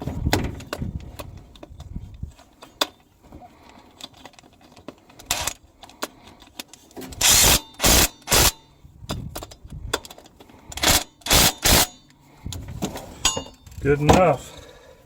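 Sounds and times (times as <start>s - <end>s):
metal tools clanking: 12.8s - 14.4s.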